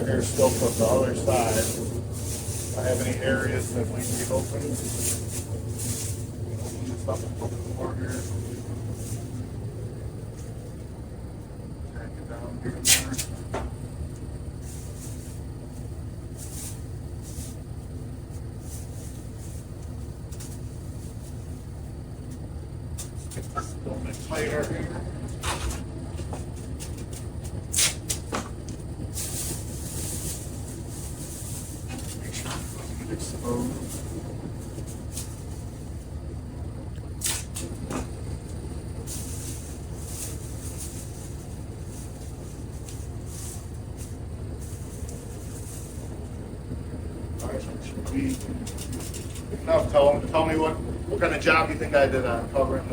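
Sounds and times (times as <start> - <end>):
plastic sheeting rustling: 0.0 - 9.4, 26.5 - 35.9, 39.0 - 46.2
low background rumble: 0.0 - 52.9
steady low hum: 0.0 - 52.9.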